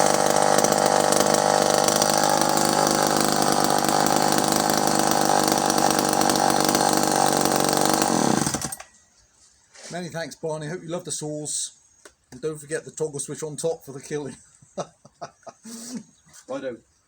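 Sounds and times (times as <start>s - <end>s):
chainsaw engine running: 0.0s - 8.9s.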